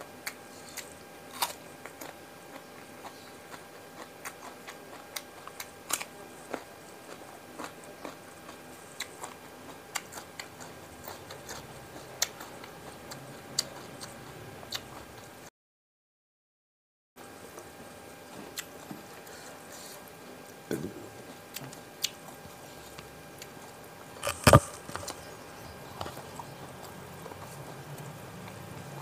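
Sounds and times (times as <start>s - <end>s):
faint steady hum: 0.0s - 15.5s, 17.2s - 29.0s
person crunching cucumber: 0.2s - 15.2s, 24.2s - 28.7s.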